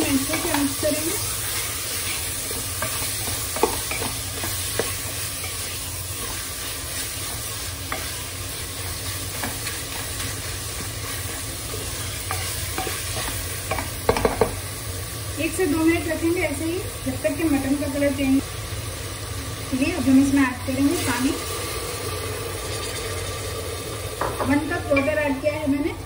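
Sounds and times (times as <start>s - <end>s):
wooden spatula scraping a pot: 0.0s - 13.9s
food sizzling in a pot: 0.0s - 26.0s.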